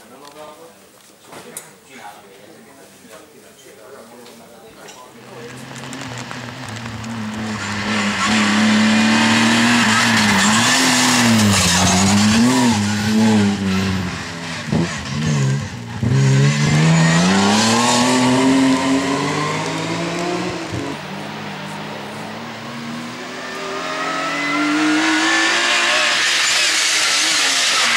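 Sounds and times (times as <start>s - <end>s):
rally car engine revving: 5.3s - 27.9s.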